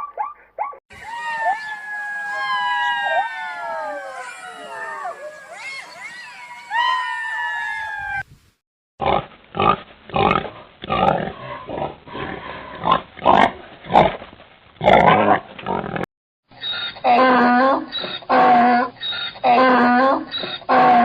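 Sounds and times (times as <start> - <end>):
falling pitched call: 0.9 - 8.3
pig grunting: 9.0 - 14.2, 14.8 - 16.0.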